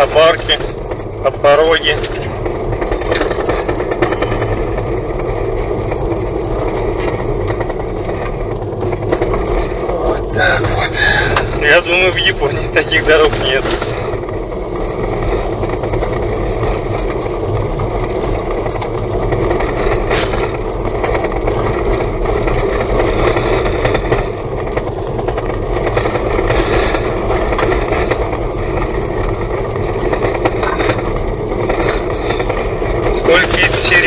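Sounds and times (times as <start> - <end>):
tyres rumbling on rough road: 0.0 - 34.0.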